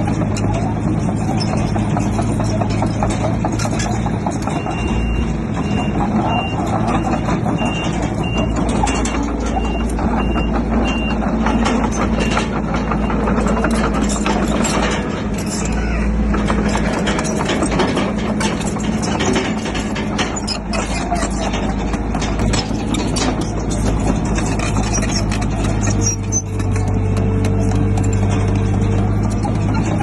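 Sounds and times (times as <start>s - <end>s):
heavy diesel machinery running: 0.0s - 30.0s
sharp knocks and clatters: 0.0s - 30.0s
reversing alarm beeping: 4.5s - 14.1s.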